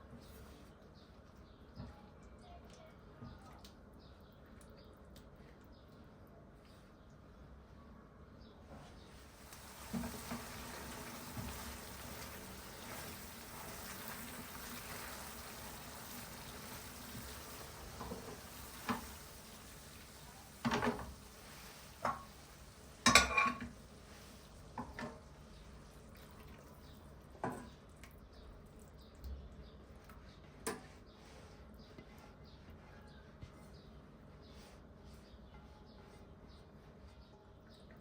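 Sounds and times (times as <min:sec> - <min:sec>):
faint steady hiss: 0:09.1 - 0:27.7
dishes and utensils clinking: 0:23.0 - 0:23.8.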